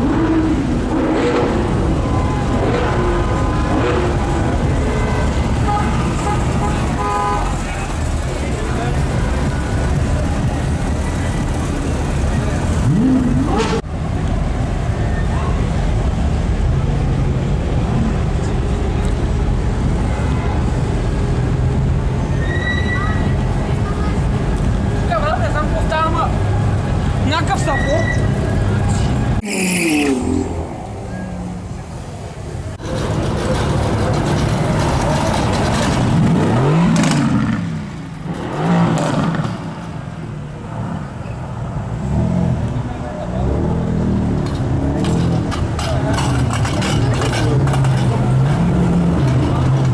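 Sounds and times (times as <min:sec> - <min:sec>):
car engines idling: 0:00.0 - 0:29.5, 0:30.2 - 0:49.9
street traffic: 0:00.0 - 0:49.9
sports car engine revving: 0:32.8 - 0:40.0.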